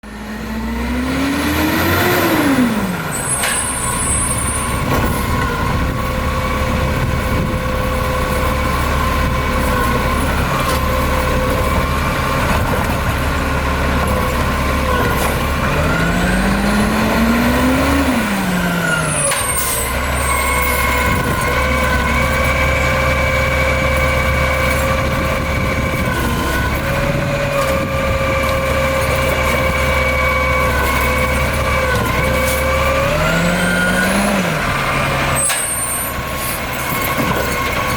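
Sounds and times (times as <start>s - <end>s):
diesel truck engine revving: 0.0s - 37.9s.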